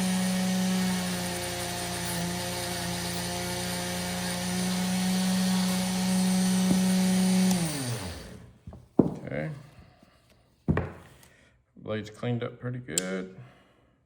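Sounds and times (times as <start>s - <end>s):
rotary tool running: 0.0s - 8.5s.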